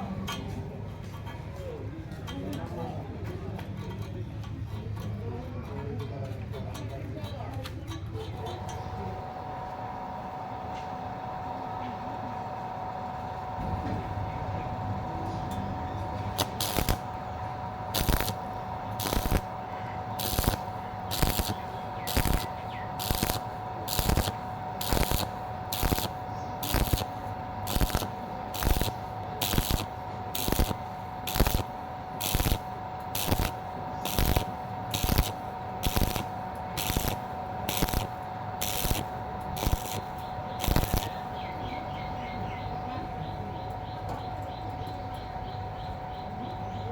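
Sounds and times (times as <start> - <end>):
welding arc crackling: 8.3 - 42.8
steady whine: 8.4 - 46.9.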